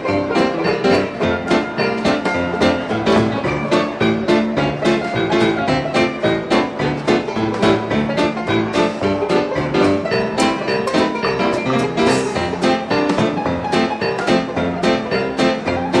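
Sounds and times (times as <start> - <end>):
jazz dance orchestra playing: 0.0 - 16.0.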